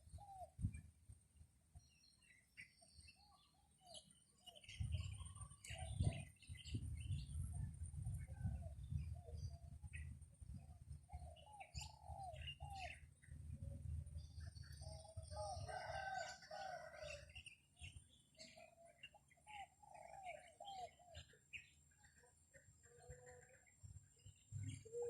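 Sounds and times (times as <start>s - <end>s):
wind rumbling on microphone: 0.0s - 0.9s, 4.7s - 11.3s.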